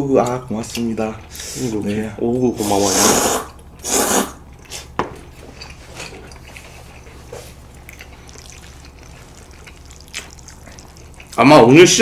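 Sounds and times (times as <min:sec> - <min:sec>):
low steady hum: 0:00.0 - 0:12.0
wet chewing and mouth sounds: 0:00.1 - 0:12.0.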